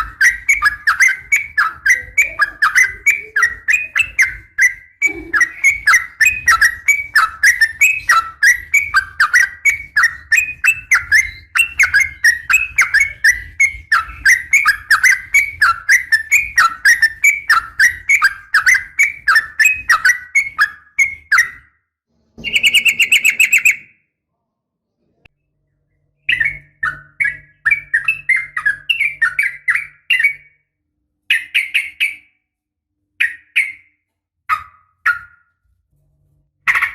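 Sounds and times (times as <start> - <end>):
buzzy bird trill: 0.0 - 21.8, 22.4 - 24.0, 26.2 - 30.7.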